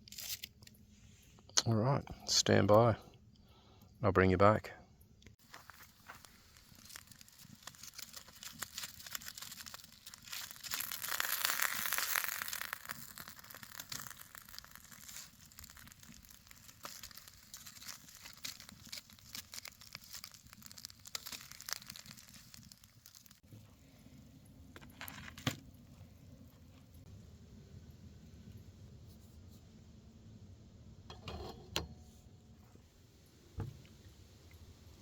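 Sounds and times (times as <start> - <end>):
food sizzling on a barbecue: 5.4 - 23.5.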